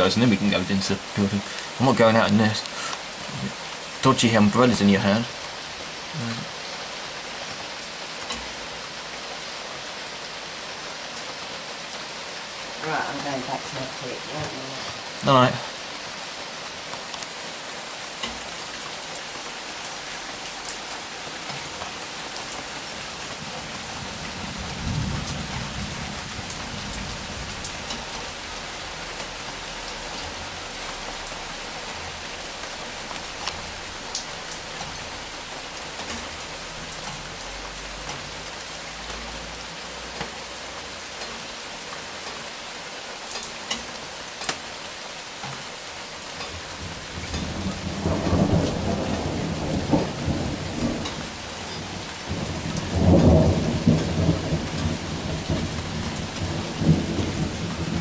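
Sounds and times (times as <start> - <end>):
sharp drips ticking: 0.0 - 6.9, 43.1 - 58.0
heavy rain: 0.0 - 58.0
low thunder rumble: 23.4 - 29.0, 46.6 - 58.0.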